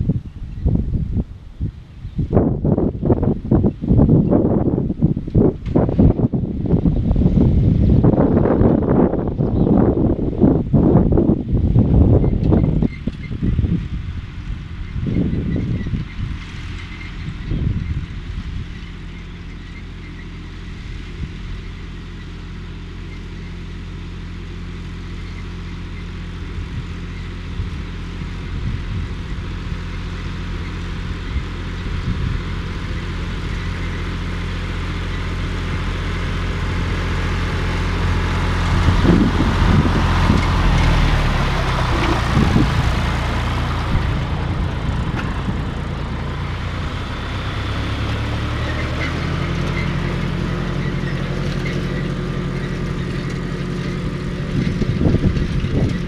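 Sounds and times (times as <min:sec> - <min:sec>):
tractor diesel engine under load: 0:00.0 - 0:56.0
engine knocks: 0:26.4 - 0:56.0.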